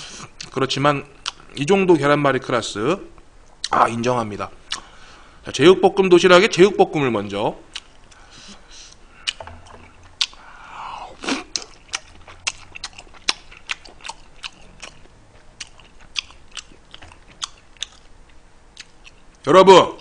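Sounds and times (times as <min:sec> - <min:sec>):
person chewing food: 0:01.2 - 0:01.5, 0:07.7 - 0:19.4
wet mouth clicks: 0:09.2 - 0:10.4.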